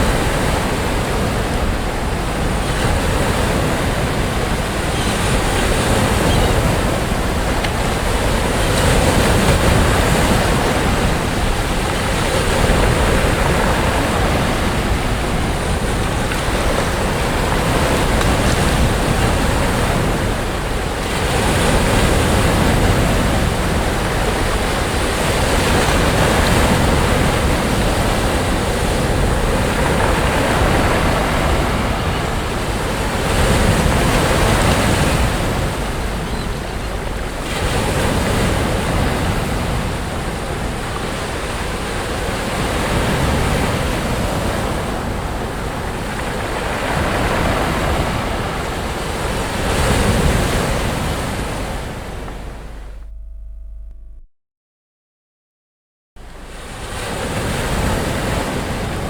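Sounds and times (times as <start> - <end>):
sea waves breaking on shore: 0.0 - 53.2, 56.2 - 59.0
wind rumbling on microphone: 0.0 - 54.2.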